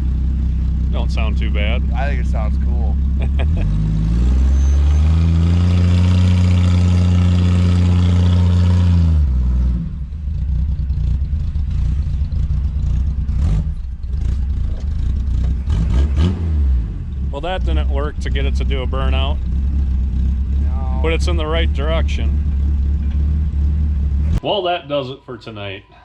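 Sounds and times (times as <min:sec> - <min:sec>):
car engine revving: 0:00.0 - 0:24.4
engine uneven rumble: 0:00.0 - 0:24.5.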